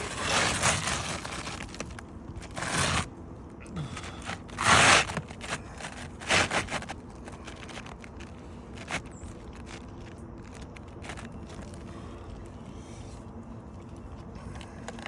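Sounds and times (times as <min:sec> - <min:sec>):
scraping on roof shingles: 0:00.0 - 0:03.1, 0:03.8 - 0:11.9.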